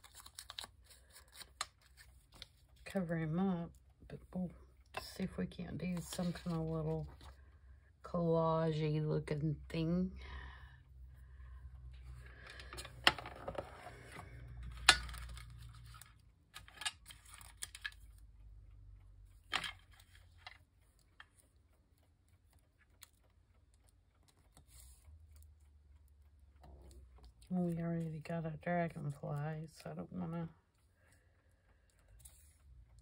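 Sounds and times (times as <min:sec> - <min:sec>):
paper rustling: 0:00.0 - 0:02.9, 0:05.8 - 0:07.4, 0:24.4 - 0:25.4.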